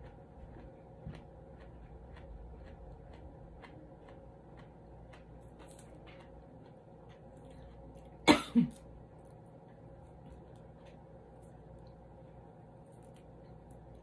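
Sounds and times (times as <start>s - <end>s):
close-mouthed chewing: 0.0s - 8.2s
low steady hum: 0.0s - 14.0s.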